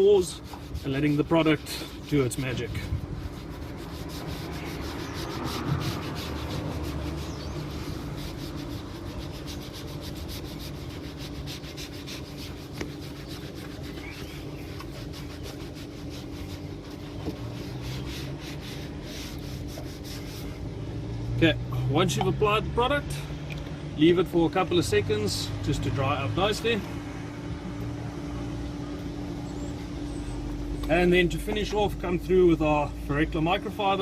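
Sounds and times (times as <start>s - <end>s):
sponge scrubbing plastic: 0.0s - 20.6s
steady low hum: 0.0s - 34.0s.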